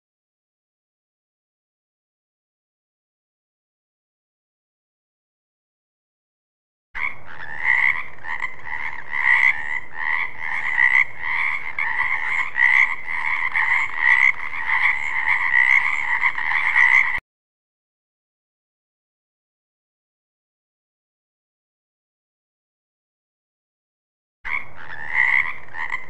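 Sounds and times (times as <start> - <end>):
frogs croaking in chorus: 7.0 - 17.2, 24.5 - 26.0.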